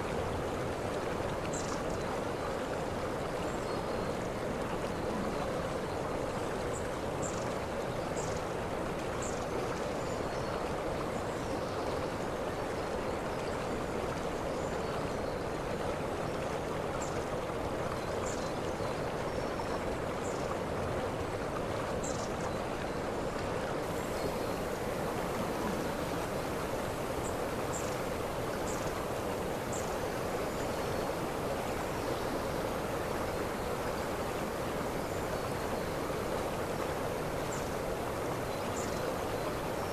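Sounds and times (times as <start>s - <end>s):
waterfall rushing: 23.8s - 39.9s.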